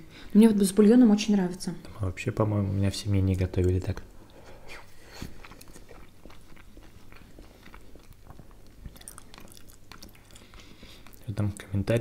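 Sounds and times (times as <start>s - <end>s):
person chewing food: 3.6s - 11.8s.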